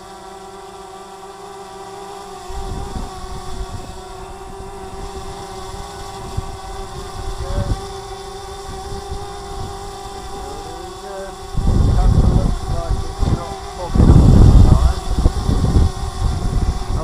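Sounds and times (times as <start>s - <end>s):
drone propellers whining: 0.0s - 17.0s
wind buffeting microphone: 2.4s - 17.0s.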